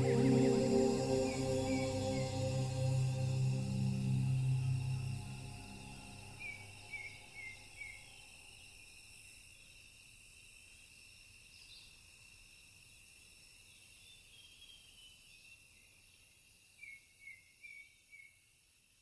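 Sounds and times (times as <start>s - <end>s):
meditative music: 0.0s - 7.4s.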